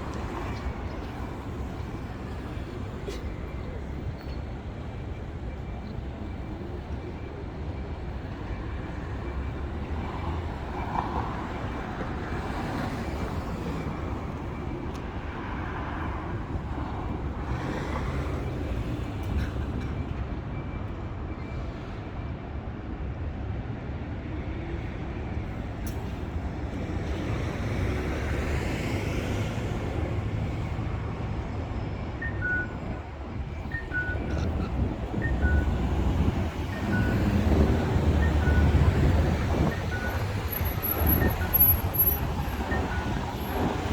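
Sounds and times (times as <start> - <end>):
vehicles passing by: 0.0 - 20.6, 25.6 - 43.9
traffic rumble: 0.0 - 22.2, 24.2 - 43.9.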